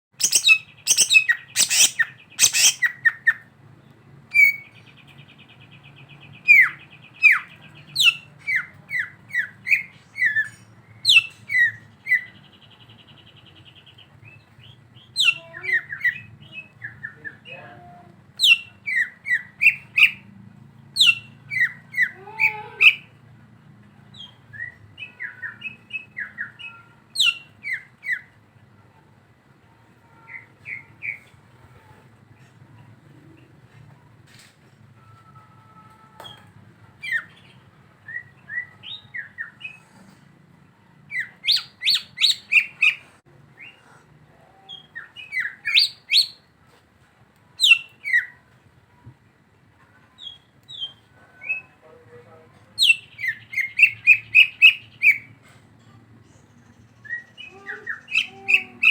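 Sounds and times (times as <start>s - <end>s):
buzzy bird trills: 0.2s - 2.9s
bird whistling and chipping: 0.2s - 3.4s, 41.1s - 43.0s, 47.6s - 48.3s, 52.8s - 55.3s.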